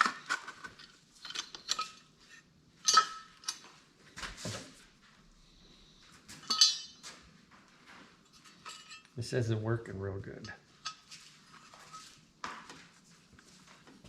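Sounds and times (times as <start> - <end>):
metal tools clinking: 0.7 - 3.8, 6.3 - 7.2, 8.3 - 9.4, 10.4 - 12.2.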